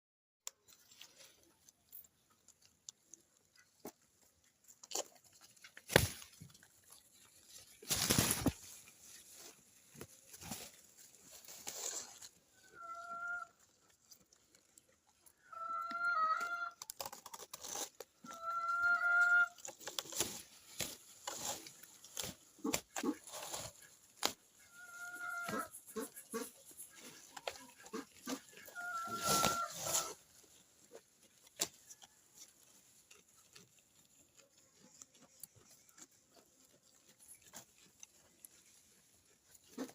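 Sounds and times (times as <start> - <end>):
crackly rustling and crunching: 0.4 - 39.9
farm animal calls: 8.7 - 14.6, 15.2 - 16.9, 18.2 - 19.8, 20.8 - 39.9.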